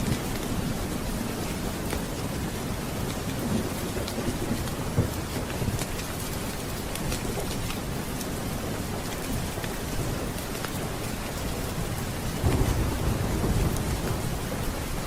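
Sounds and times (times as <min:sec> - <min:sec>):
steady rain: 0:00.0 - 0:15.0
thunder rumbling: 0:11.9 - 0:15.0.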